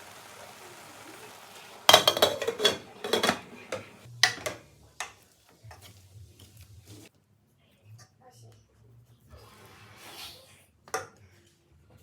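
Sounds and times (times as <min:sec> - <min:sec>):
utensils clattering on cookware: 0:01.8 - 0:04.6.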